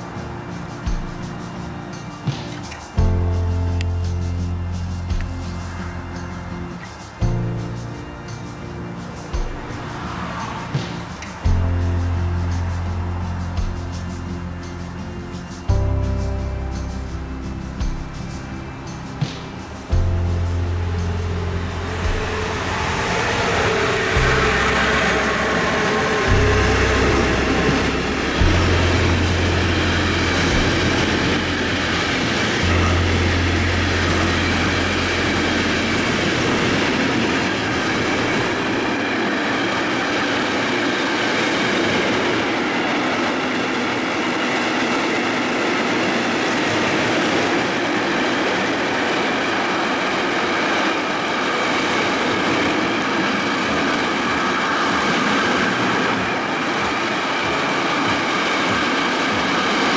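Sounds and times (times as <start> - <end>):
freight train wheels rumbling: 0.0 - 59.9
deep low drone: 9.4 - 38.6.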